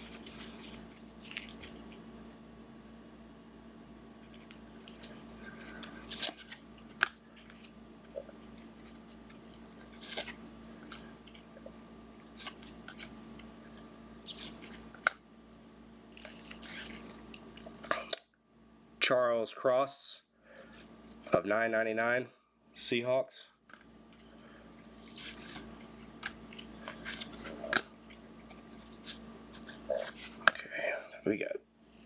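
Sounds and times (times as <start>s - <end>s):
card packaging crinkling: 0.0s - 2.0s, 4.4s - 7.8s, 8.4s - 15.1s, 16.0s - 17.4s, 23.8s - 30.6s.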